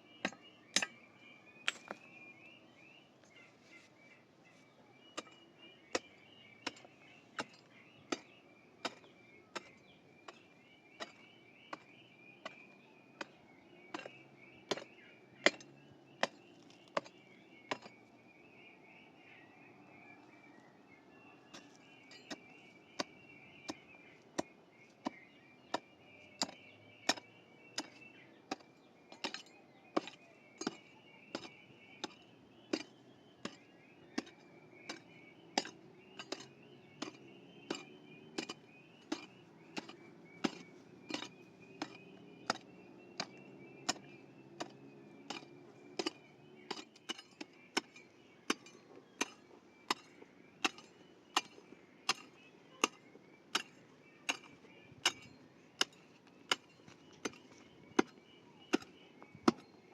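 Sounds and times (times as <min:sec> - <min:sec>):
hand tool striking: 0:00.2 - 0:01.0, 0:01.6 - 0:02.0, 0:05.2 - 0:10.4, 0:11.0 - 0:12.6, 0:13.2 - 0:18.0, 0:21.5 - 0:59.7.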